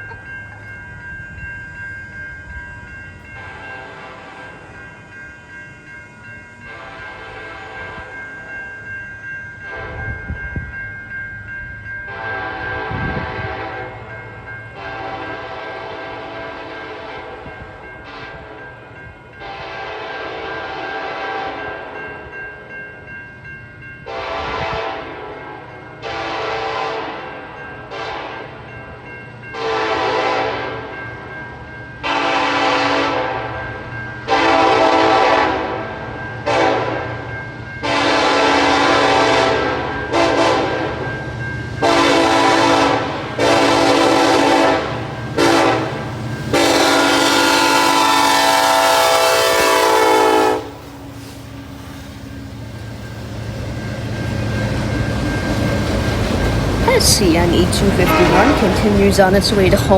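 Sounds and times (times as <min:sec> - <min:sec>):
locomotive air horn blasts: 0:12.1 - 0:14.0, 0:14.8 - 0:17.4, 0:19.4 - 0:21.6, 0:24.1 - 0:25.3, 0:26.0 - 0:27.3, 0:29.6 - 0:30.8, 0:32.0 - 0:33.5, 0:34.3 - 0:35.8, 0:36.5 - 0:37.0, 0:37.8 - 0:40.9, 0:41.8 - 0:50.9, 0:57.6 - 0:59.1
low locomotive rumble: 0:37.9 - 0:59.9.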